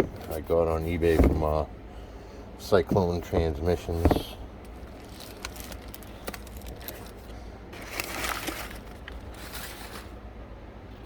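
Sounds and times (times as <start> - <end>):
packaging rustling: 3.9 - 10.2.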